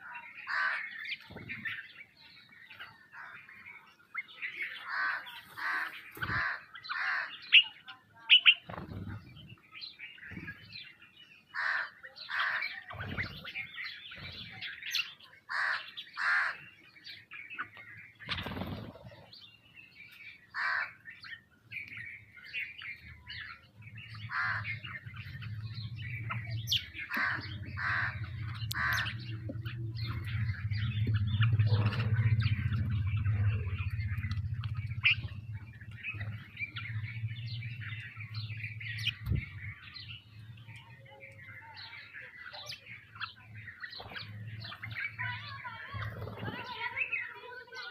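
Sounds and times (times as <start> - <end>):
birds calling: 0.0 - 47.9
low steady hum: 21.2 - 46.9.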